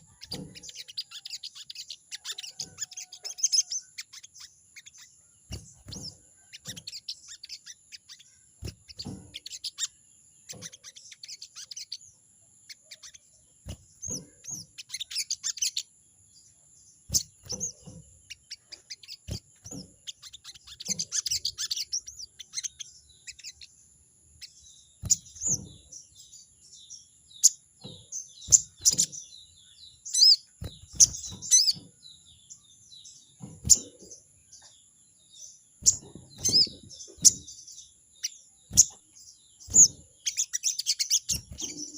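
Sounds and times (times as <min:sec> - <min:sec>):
bird harsh chattering calls: 0:00.0 - 0:12.0, 0:12.7 - 0:15.9, 0:17.1 - 0:23.7, 0:35.8 - 0:41.9.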